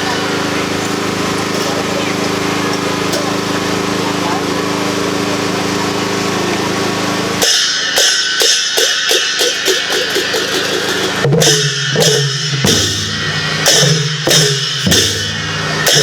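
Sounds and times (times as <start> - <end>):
cymbal crashes: 7.4 - 16.0
drum beats: 7.4 - 16.0.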